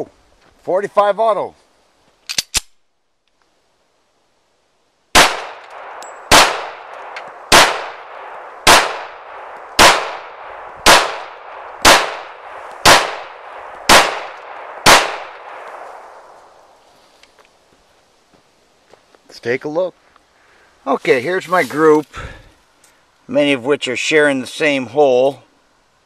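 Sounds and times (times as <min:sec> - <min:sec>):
pistol shots: 0:05.2 - 0:16.2.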